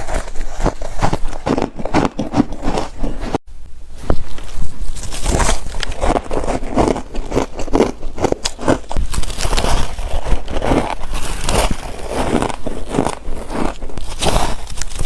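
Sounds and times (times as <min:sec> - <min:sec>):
crunching frost between teeth: 0:00.0 - 0:03.4, 0:04.0 - 0:15.0.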